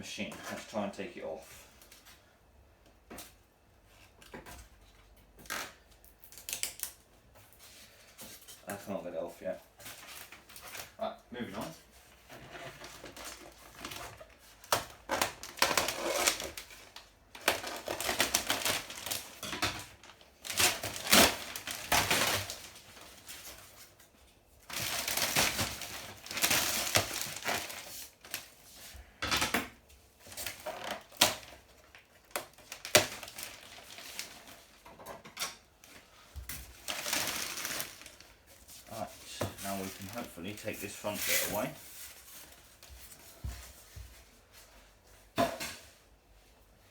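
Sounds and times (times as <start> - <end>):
packaging rustling and tearing: 12.1 - 24.0, 24.6 - 28.7, 30.2 - 42.9.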